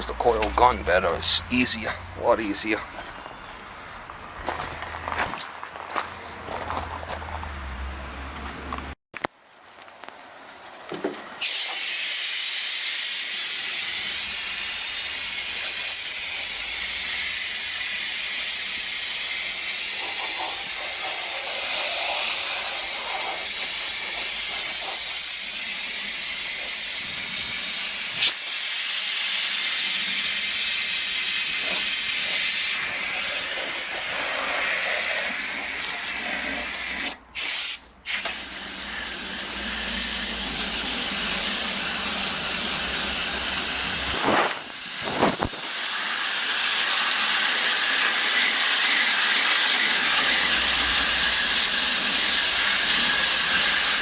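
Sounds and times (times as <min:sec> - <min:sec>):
water spray hissing: 0:11.4 - 0:54.0.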